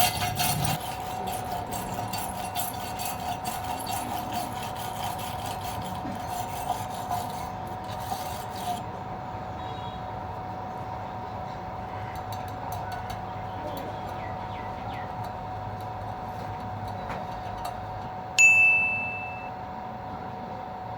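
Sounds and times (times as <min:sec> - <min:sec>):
bright metallic ring: 0:18.4 - 0:19.6.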